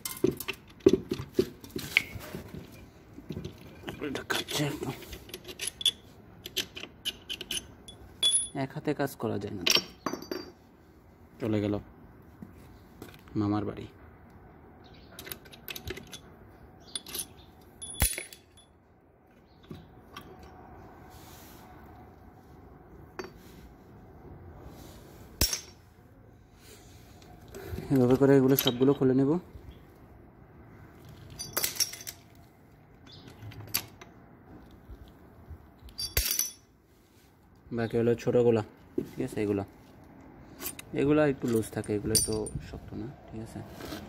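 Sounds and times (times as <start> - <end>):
metal tools clinking: 0.0 - 1.0, 1.9 - 8.7, 9.6 - 10.7, 15.1 - 18.8, 25.4 - 25.8, 27.8 - 29.2, 31.1 - 32.4, 35.8 - 36.7, 40.5 - 42.7
hand tool clicking on metal parts: 4.2 - 8.5.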